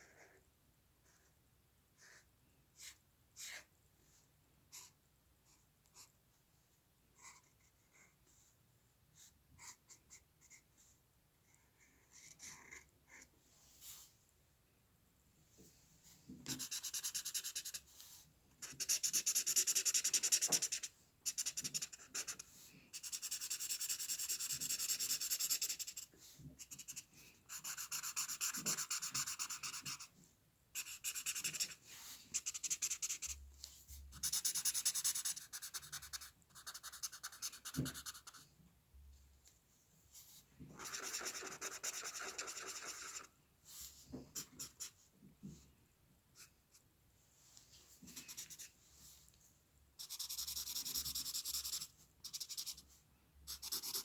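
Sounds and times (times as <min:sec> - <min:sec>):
drawing tool scratching on paper: 0:16.5 - 0:17.8, 0:18.6 - 0:30.1, 0:30.8 - 0:33.4, 0:34.2 - 0:38.4, 0:40.8 - 0:43.3, 0:50.0 - 0:52.8, 0:53.5 - 0:54.0.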